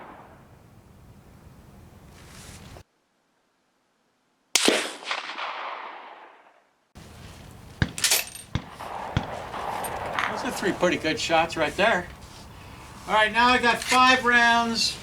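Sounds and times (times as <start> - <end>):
rifle shot: 0.0 - 0.5, 4.5 - 6.7, 7.8 - 10.8.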